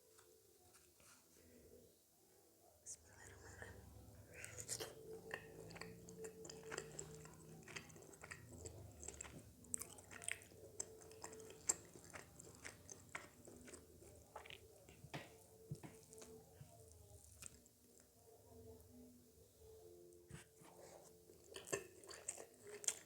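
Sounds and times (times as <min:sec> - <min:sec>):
chewing and biting food: 0:04.3 - 0:16.5, 0:21.3 - 0:23.0.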